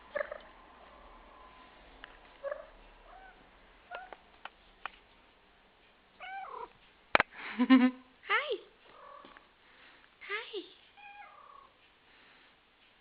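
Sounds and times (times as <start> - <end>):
cat meowing softly: 11.0 - 11.8.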